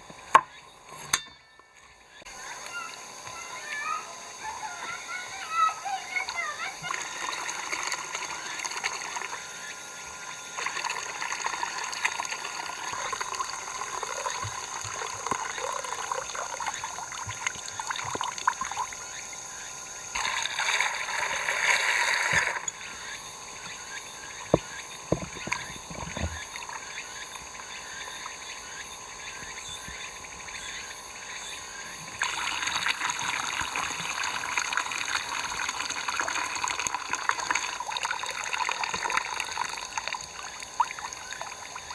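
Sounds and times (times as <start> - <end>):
water trickling and pouring: 10.2 - 19.0, 20.2 - 22.8, 32.2 - 41.9.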